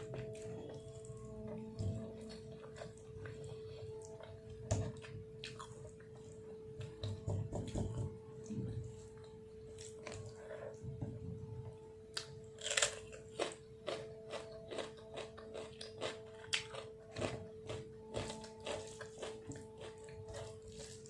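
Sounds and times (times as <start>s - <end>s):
chewing and crunching food: 0.0s - 11.0s, 12.1s - 21.0s.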